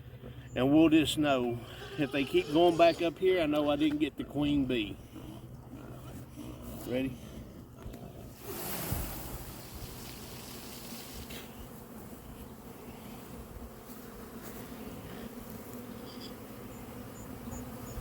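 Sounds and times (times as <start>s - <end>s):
bee swarm buzzing: 0.1s - 18.0s
tree rustling: 8.4s - 11.5s.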